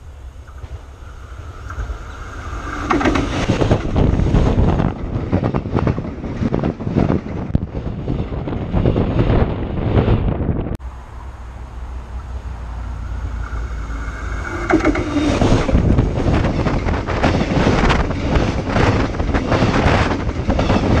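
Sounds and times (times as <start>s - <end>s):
train rumbling overhead: 0.0s - 21.0s
train whine: 0.0s - 21.0s
air buffeting microphone: 11.9s - 21.0s.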